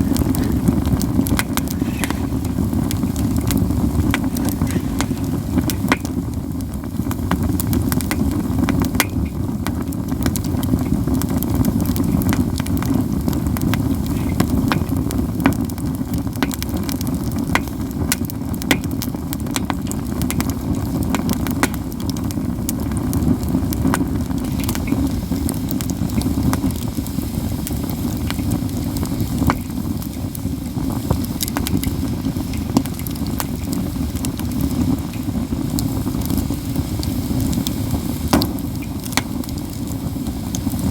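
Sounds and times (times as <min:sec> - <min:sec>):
steady low rush: 0:00.0 - 0:07.8
campfire crackling: 0:00.0 - 0:40.9
sharp fire pops: 0:00.0 - 0:40.9.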